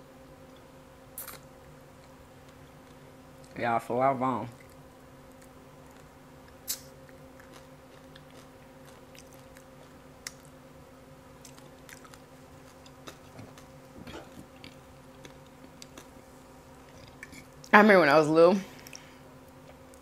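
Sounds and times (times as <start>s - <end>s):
faint steady hum: 0.0s - 20.0s
soft chewing: 4.5s - 10.7s, 11.3s - 17.7s, 18.7s - 20.0s.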